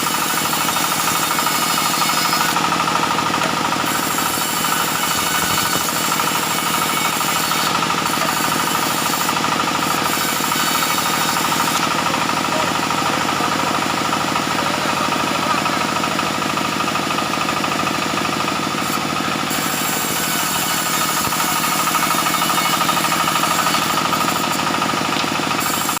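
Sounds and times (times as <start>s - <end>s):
sawmill machinery droning: 0.0s - 26.0s.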